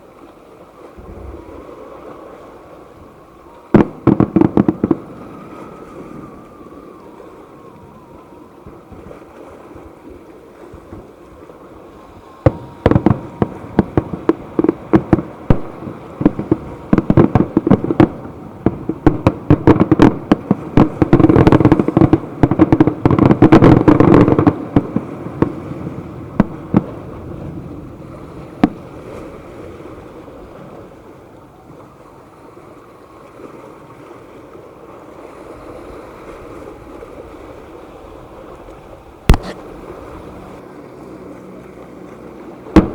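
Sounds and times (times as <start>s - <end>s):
background rumble: 0.8s - 32.3s, 35.7s - 42.9s
fireworks bangs and crackling: 3.6s - 9.3s, 12.4s - 29.4s, 39.3s - 39.6s.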